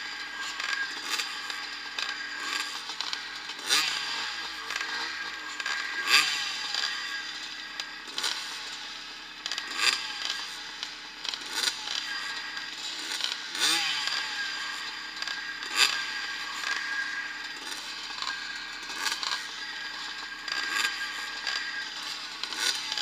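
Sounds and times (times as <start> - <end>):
motorcycle engines revving hard: 0.0 - 23.0.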